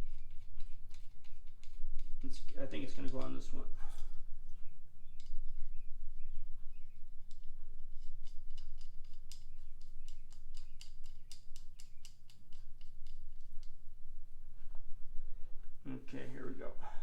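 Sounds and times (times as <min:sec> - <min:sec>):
steady low hum: 0:00.0 - 0:17.0
sharp metallic clicks: 0:08.2 - 0:13.7.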